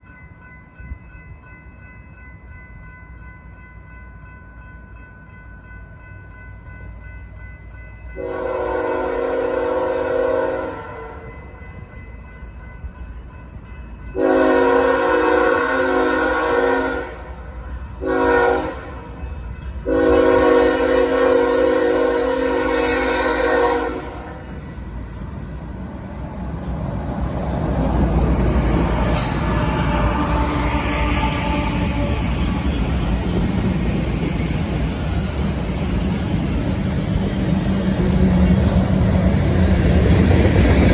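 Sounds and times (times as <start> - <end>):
freight train rumble: 0.0 - 40.9
train horn: 8.2 - 11.4, 14.2 - 17.4, 18.0 - 19.1, 19.8 - 24.8, 28.8 - 33.4.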